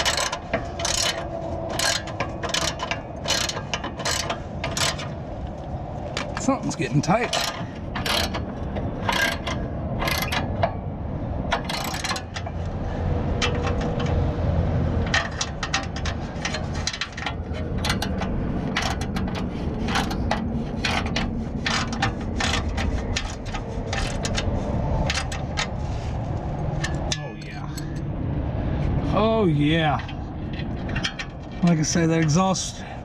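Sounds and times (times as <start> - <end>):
ratchet wrench clicking: 0.0 - 5.1, 7.3 - 10.7, 11.5 - 12.8, 15.1 - 25.7.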